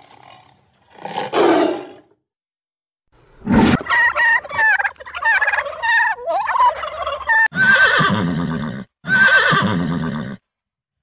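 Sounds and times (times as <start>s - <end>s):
turkeys gobbling: 3.8s - 7.5s
horse whinnying: 7.4s - 10.4s.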